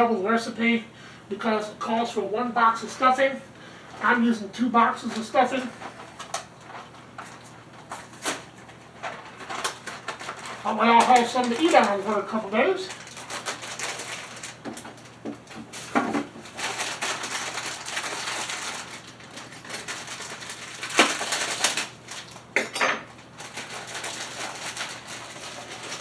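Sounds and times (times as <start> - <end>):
dry mix rustling into a bowl: 4.0 - 22.5
packets and dishes clattering: 5.1 - 12.3, 12.9 - 26.0.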